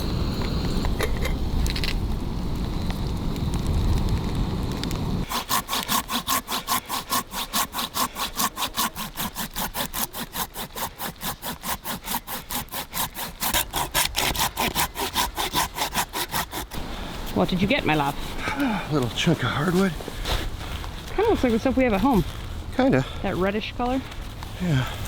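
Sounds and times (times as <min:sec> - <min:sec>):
handsaw cutting wood: 0:05.2 - 0:18.3.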